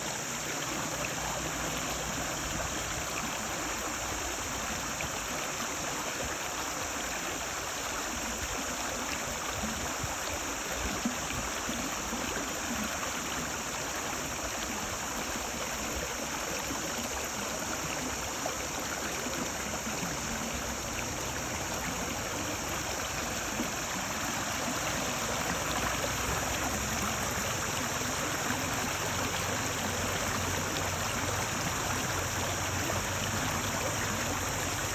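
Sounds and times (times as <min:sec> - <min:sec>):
stream water babbling: 0:00.0 - 0:34.9.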